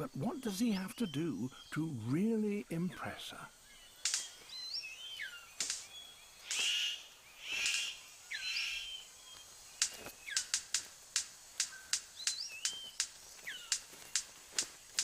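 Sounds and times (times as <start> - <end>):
harsh hissing bird calls: 0.0 - 15.0
bird clicks and snaps: 4.0 - 4.4, 5.6 - 6.8, 9.8 - 15.0.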